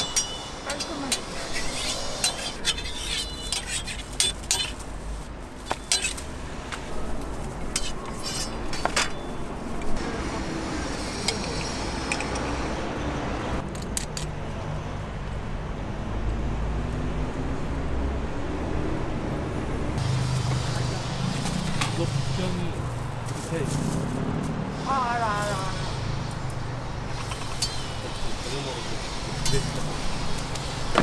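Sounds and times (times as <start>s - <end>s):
metal utensils clinking on pans: 0.0s - 10.2s, 11.2s - 12.6s, 20.0s - 24.5s, 25.4s - 31.0s.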